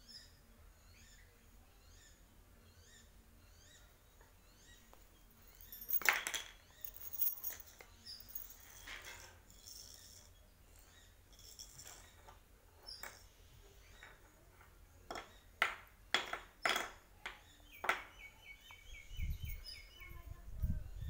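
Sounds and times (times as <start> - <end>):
bird chirping: 17.2 - 21.0.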